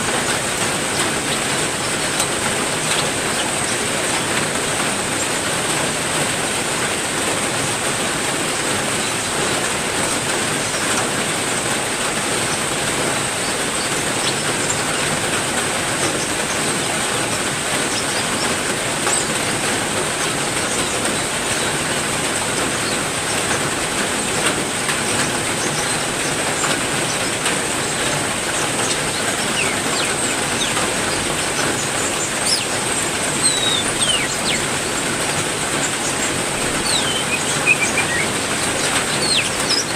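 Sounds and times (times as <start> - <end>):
heavy rain falling: 0.0 - 39.9
bird chirps: 28.5 - 34.8, 35.8 - 39.9.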